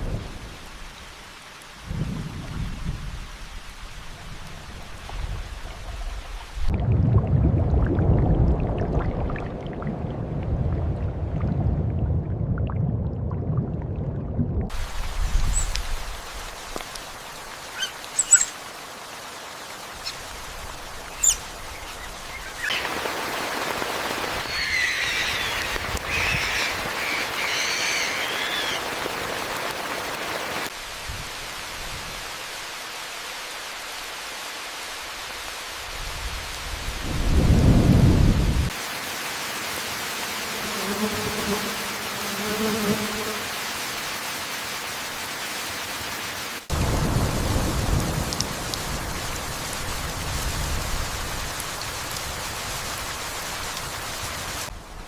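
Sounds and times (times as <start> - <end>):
rain hiss: 0.0 - 6.7, 14.7 - 55.0
thunder rumble: 1.8 - 16.1, 36.9 - 38.7, 46.7 - 51.6
birds chirping: 17.7 - 18.6, 21.0 - 23.0, 24.4 - 29.6.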